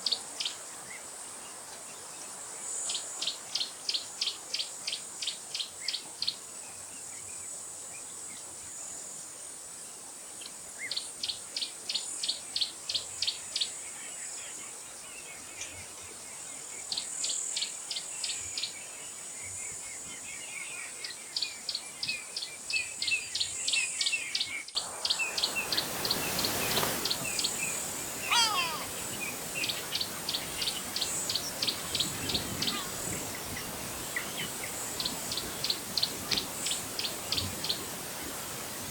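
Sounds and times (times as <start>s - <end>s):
insects droning: 24.8s - 38.9s
birds calling rapid high notes: 25.3s - 35.9s
bird call falling in pitch: 26.2s - 29.8s.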